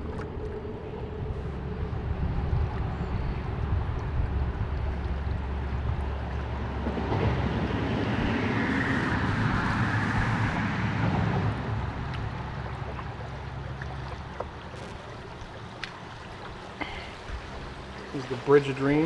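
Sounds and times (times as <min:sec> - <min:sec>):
wind noise on microphone: 0:00.0 - 0:12.7
rushing river water: 0:00.0 - 0:19.0.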